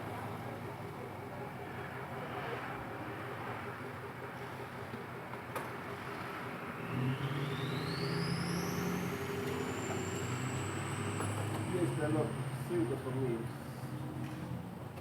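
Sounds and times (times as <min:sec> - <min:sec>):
high whine rising in pitch: 0:06.8 - 0:12.1.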